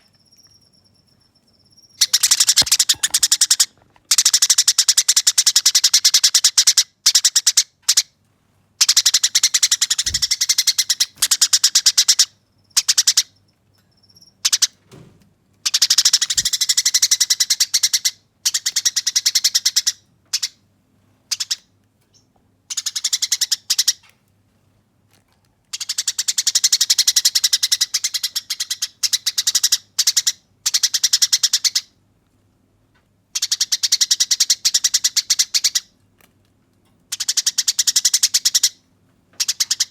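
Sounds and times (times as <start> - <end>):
sparrows rattling chatter: 0.0 - 4.5, 8.8 - 13.4, 15.7 - 20.5, 39.4 - 39.9.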